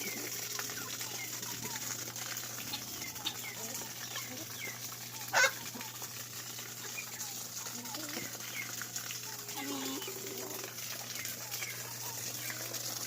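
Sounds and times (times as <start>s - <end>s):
chickens peeping and clucking: 0.0s - 13.0s
chicken squawk: 5.2s - 6.0s.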